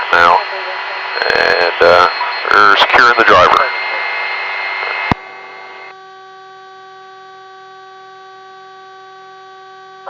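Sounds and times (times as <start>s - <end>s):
radio click: 1.3s - 4.1s, 4.8s - 5.2s.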